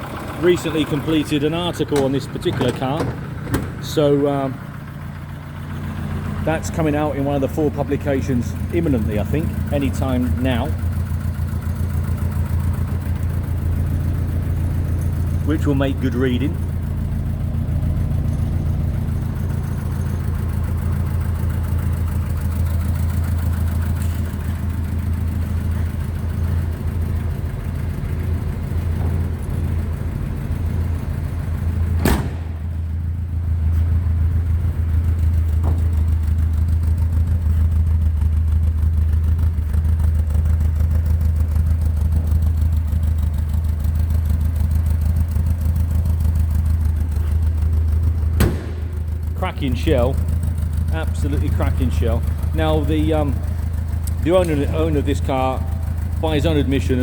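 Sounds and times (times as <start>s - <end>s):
car engine idling: 0.0s - 57.0s
sharp knock: 48.4s - 49.0s.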